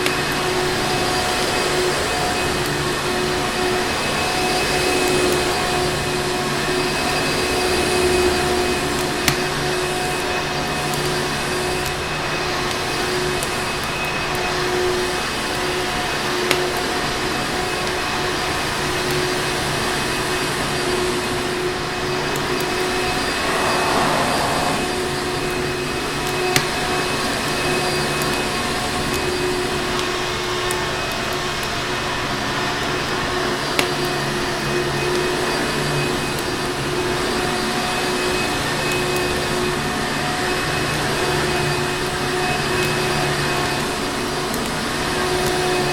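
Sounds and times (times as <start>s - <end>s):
vacuum cleaner running: 18.7s - 25.6s.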